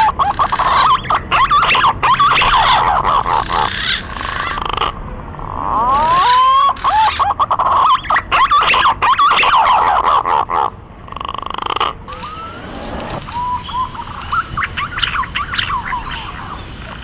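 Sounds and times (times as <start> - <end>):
pigeon call whistles: 0.0 - 4.0, 6.0 - 10.2, 12.1 - 16.6.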